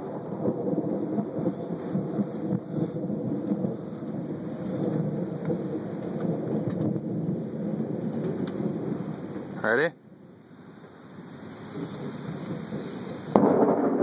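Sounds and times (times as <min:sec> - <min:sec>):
thunder rumbling: 0:00.0 - 0:10.4, 0:11.1 - 0:14.0
steady rain: 0:00.0 - 0:14.0.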